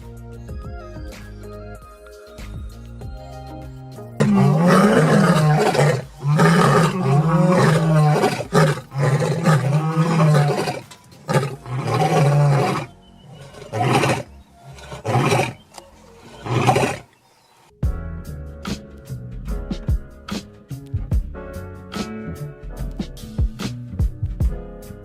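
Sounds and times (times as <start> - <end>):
dog screaming: 4.2 - 15.6.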